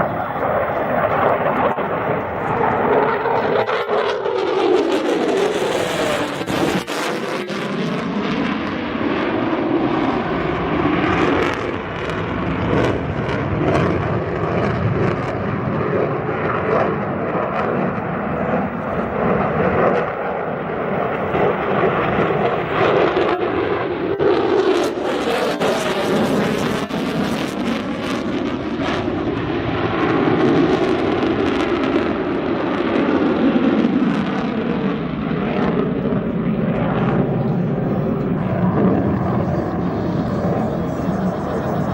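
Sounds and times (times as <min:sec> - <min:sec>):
jet roar: 0:00.0 - 0:41.9.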